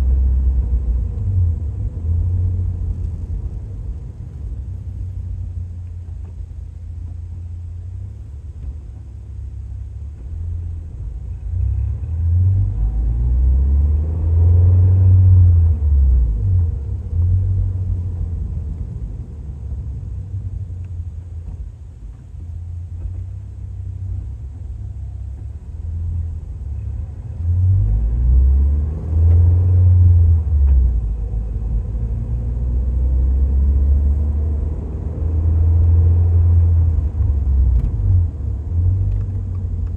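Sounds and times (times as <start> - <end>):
car engine and exhaust rumbling: 0.0 - 39.9.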